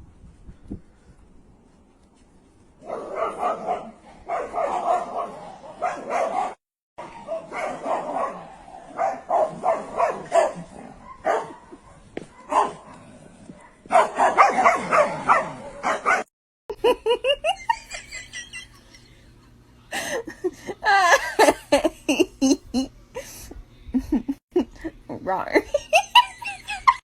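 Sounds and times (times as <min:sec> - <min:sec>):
dog barking: 0:02.8 - 0:13.0, 0:13.6 - 0:16.3.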